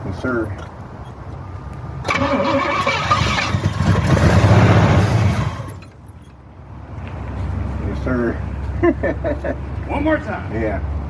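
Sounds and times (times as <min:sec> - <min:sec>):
car engine starting and revving: 0:02.0 - 0:05.9.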